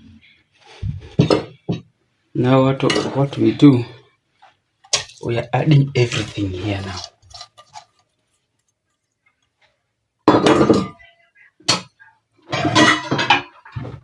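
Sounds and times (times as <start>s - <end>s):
metal pots and utensils clanking: 2.8s - 3.6s, 4.9s - 8.1s, 10.3s - 11.1s, 11.7s - 14.0s.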